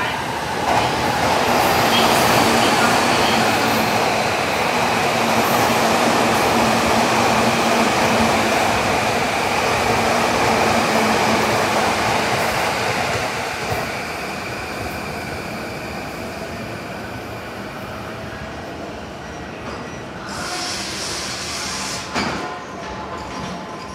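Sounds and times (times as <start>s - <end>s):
electric train rumbling on rails: 0.0s - 23.9s
burst of hiss: 20.3s - 22.2s.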